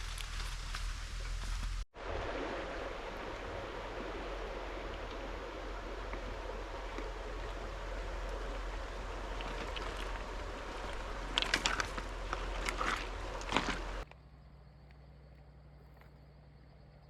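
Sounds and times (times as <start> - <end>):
river water flowing: 1.6 - 14.0.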